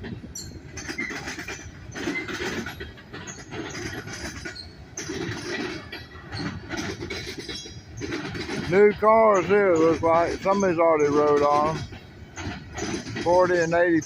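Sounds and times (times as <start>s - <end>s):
freight train wheels clattering: 0.0s - 14.0s.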